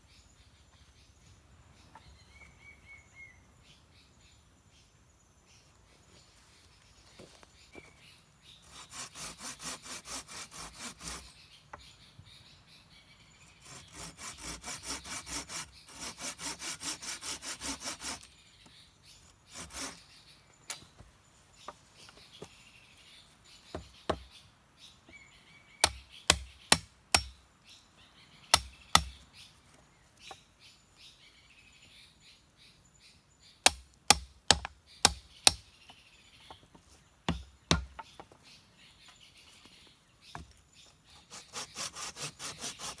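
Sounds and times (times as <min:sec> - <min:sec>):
hand saw cutting wood: 0:08.6 - 0:11.4, 0:13.5 - 0:18.3, 0:19.2 - 0:20.2, 0:25.8 - 0:27.3, 0:28.5 - 0:29.2, 0:33.6 - 0:35.6, 0:41.1 - 0:43.0
sharp strikes on wood: 0:23.7 - 0:24.3, 0:25.8 - 0:27.4, 0:28.5 - 0:29.2, 0:33.6 - 0:35.7, 0:37.3 - 0:38.3.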